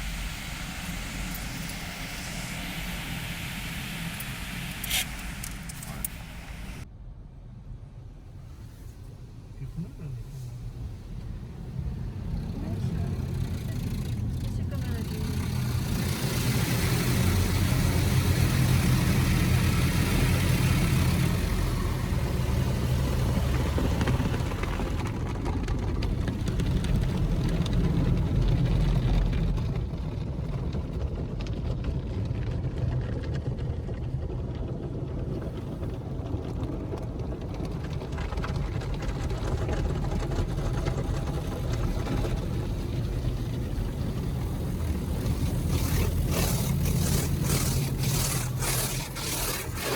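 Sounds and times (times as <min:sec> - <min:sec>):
car wash hiss: 0:00.0 - 0:06.8, 0:08.4 - 0:25.1, 0:41.1 - 0:49.9
car wash low rumble: 0:00.0 - 0:49.9.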